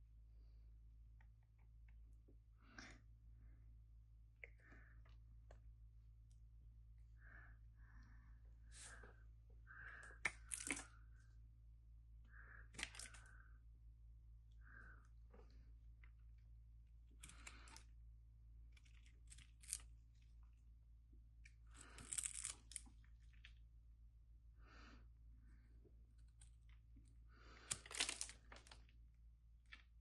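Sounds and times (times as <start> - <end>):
faint low hum: 0.0 - 30.0.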